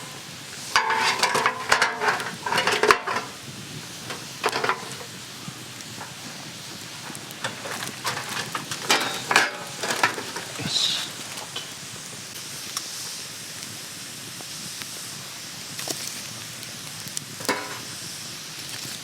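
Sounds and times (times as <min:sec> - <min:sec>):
campfire crackling: 0:00.0 - 0:19.0
steady hiss: 0:00.0 - 0:19.0
sharp clicks and knocks: 0:00.7 - 0:03.4, 0:04.1 - 0:05.2.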